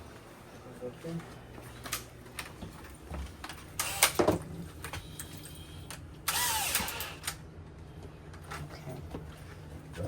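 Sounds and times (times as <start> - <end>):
power drill running: 3.8 - 4.2, 6.3 - 7.3.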